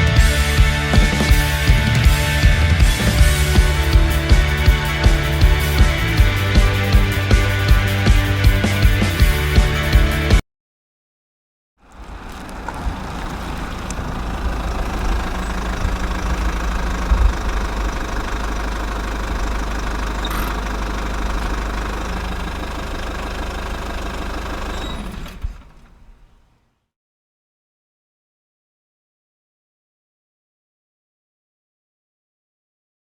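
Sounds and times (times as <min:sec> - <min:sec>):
diesel engine idling: 0:00.1 - 0:10.4, 0:11.9 - 0:26.5.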